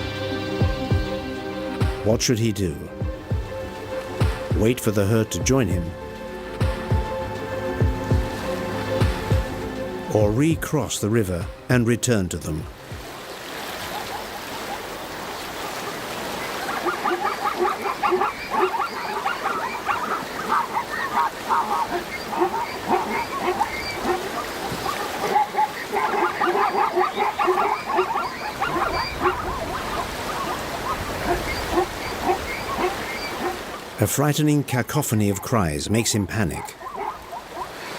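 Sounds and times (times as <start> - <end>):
zebras and wildebeest calling: 16.3 - 34.1, 34.9 - 37.9.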